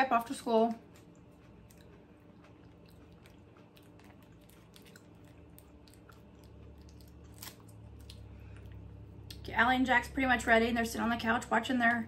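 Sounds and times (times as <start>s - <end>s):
close-up chewing: 0.3s - 9.5s.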